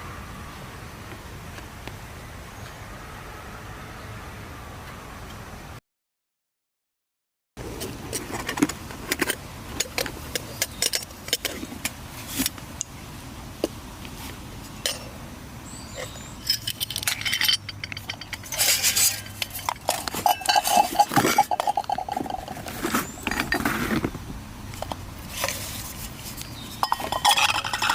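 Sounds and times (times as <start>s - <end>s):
small gear clinking and knocking: 15.9s - 24.2s, 24.8s - 27.9s.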